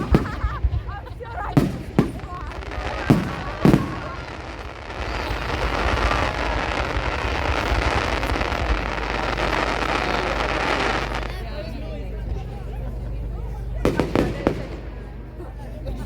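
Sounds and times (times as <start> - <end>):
firework bang: 0.0 - 11.2, 13.8 - 15.2
firework crackling: 0.0 - 11.9, 13.8 - 15.7.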